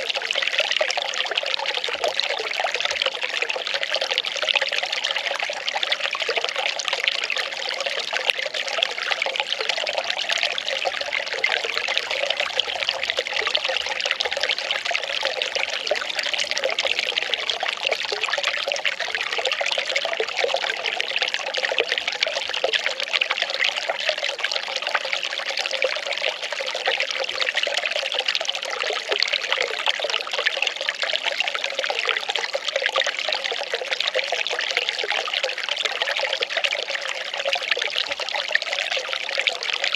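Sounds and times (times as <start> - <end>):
water pouring and trickling: 0.0 - 39.9.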